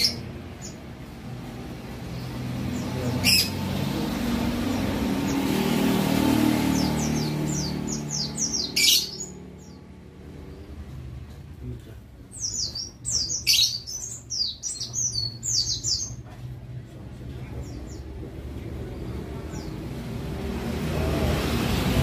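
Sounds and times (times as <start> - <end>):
high falling bird chirps: 6.3 - 9.8, 12.3 - 16.2.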